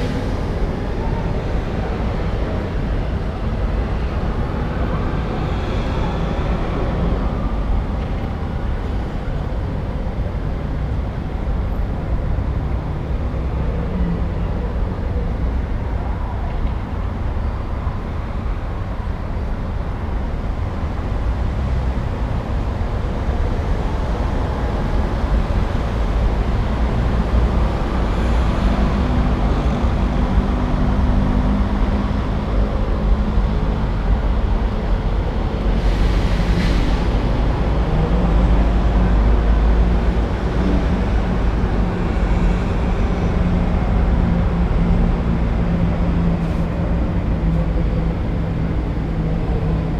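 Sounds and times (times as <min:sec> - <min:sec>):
passing traffic: 0:00.0 - 0:49.9.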